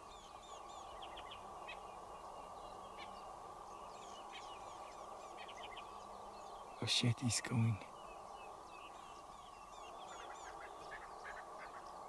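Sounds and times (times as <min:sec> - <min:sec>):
low background hiss: 0:00.0 - 0:12.0
small birds chirping: 0:00.0 - 0:12.0.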